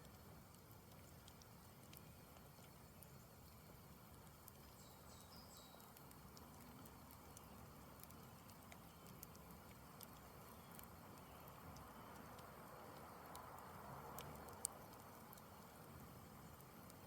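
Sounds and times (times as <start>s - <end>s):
campfire crackling and popping: 0.0s - 17.0s
low hiss: 0.0s - 17.0s.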